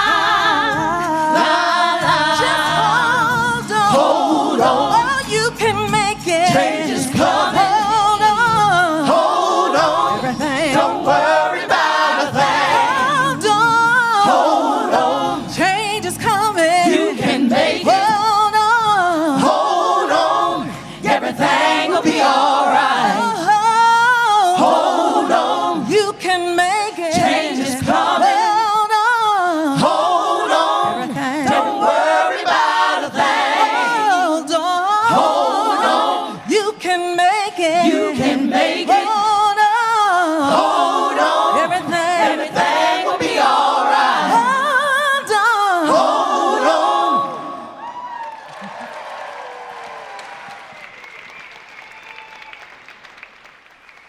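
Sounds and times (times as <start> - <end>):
gospel choir singing in harmony: 0.0 - 48.0.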